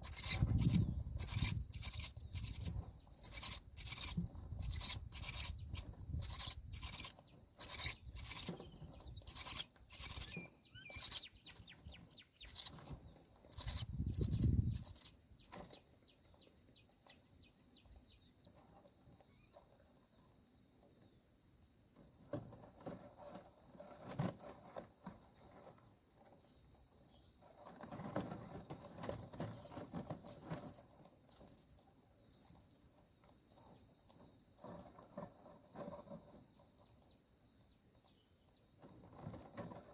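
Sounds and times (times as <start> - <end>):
chicks begging calls: 0.0 - 8.6, 9.3 - 11.6, 12.4 - 12.8, 13.5 - 15.6
rustling in nest: 0.0 - 15.8.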